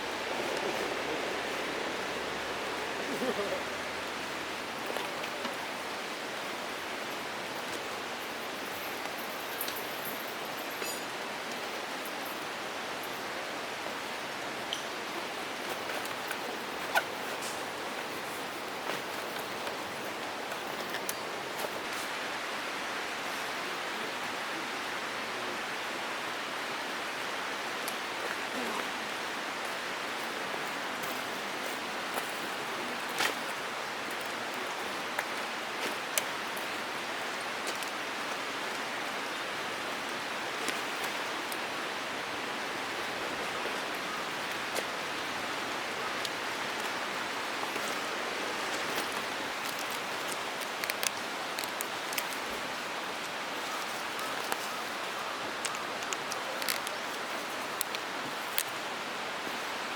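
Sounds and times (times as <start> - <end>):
campfire crackling: 0.0 - 9.8, 27.8 - 59.9.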